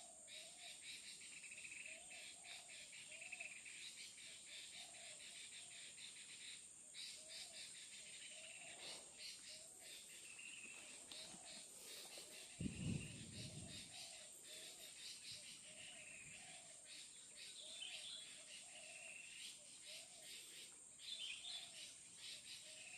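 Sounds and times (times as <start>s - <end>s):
high insect drone: 0.3s - 22.9s
pulsed insect chirping: 0.3s - 22.9s
rising bird calls: 7.0s - 22.9s
low rumbling thump: 12.6s - 13.9s.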